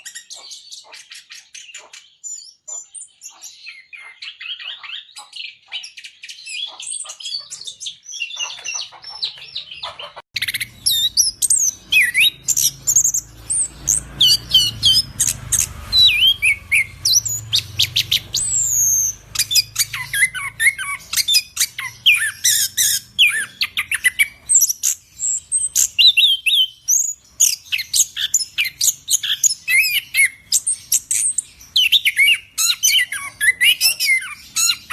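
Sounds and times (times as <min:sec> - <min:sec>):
thrush singing: 0:10.4 - 0:22.4.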